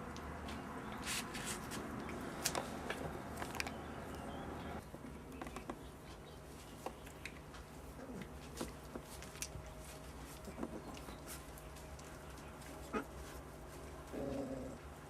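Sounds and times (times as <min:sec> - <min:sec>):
low background hum: 0:00.0 - 0:15.0
puppies scuffling: 0:05.0 - 0:15.0.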